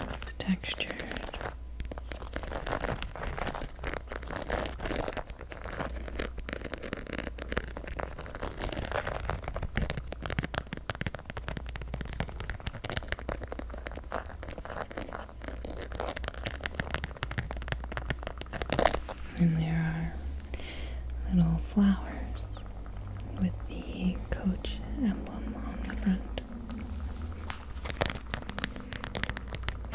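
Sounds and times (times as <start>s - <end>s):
rustling scratches: 0.0s - 29.9s
tapping on a purse: 0.8s - 19.3s, 25.2s - 29.9s.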